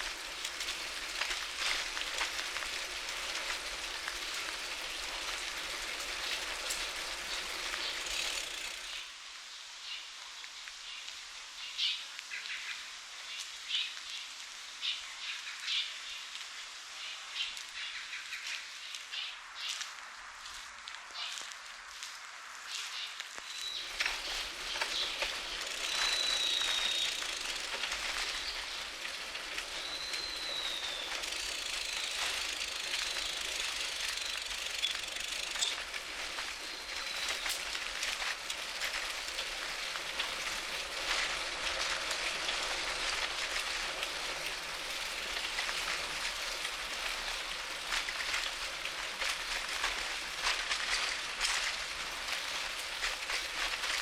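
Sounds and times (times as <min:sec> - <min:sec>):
bike rattling and clicking: 0:00.0 - 0:09.1, 0:23.8 - 0:54.0
tyres and wind hissing: 0:00.0 - 0:09.2, 0:19.4 - 0:54.0
bird whistling: 0:25.9 - 0:27.3, 0:29.8 - 0:31.2.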